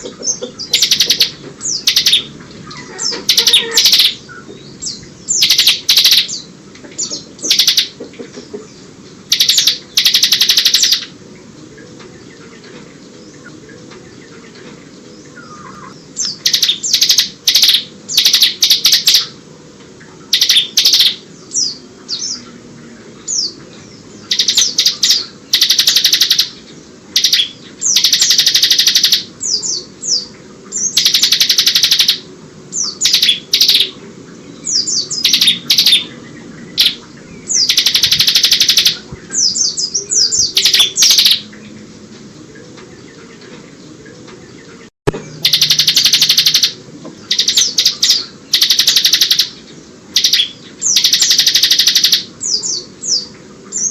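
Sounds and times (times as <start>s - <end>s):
bird mimicking phrases: 0.0s - 4.2s
bird singing rattling trills: 0.0s - 19.4s, 20.1s - 53.9s.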